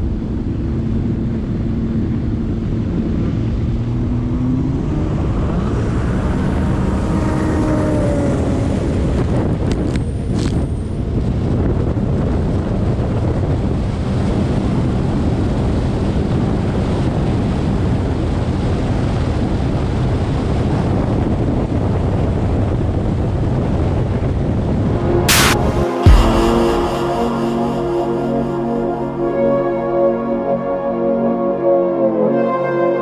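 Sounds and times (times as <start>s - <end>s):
jet ski engine: 0.0s - 10.3s
wind noise on microphone: 0.0s - 29.9s.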